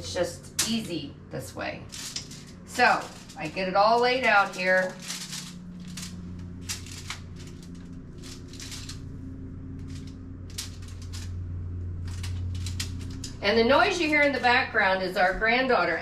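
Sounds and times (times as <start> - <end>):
bacon crackling on foil: 1.8 - 9.2, 9.8 - 14.6.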